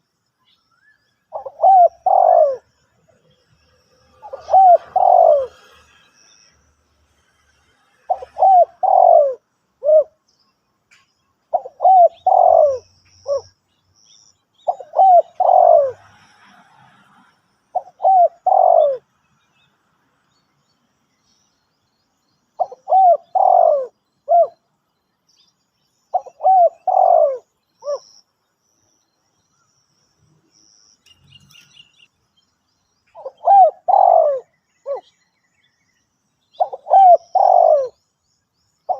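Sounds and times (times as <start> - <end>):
small bird chirping: 0.0 - 16.0, 17.7 - 38.9
dove cooing: 1.3 - 2.8, 4.1 - 6.0, 8.1 - 10.2, 11.5 - 13.5, 14.6 - 16.3, 17.7 - 19.0, 22.6 - 24.7, 26.1 - 28.1, 33.1 - 35.2, 36.5 - 38.0.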